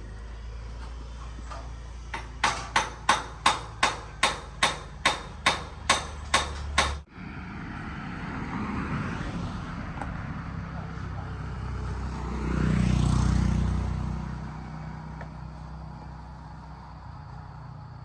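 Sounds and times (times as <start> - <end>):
sharp knocks: 2.1 - 7.0.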